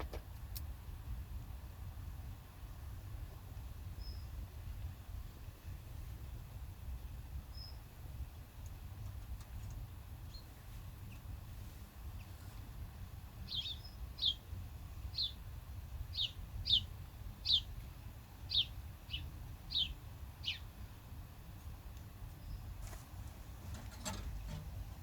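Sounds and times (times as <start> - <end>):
low outdoor rumble: 0.0 - 25.0
songbird chirping: 13.4 - 15.4, 16.1 - 17.7, 18.5 - 20.7, 22.3 - 22.8.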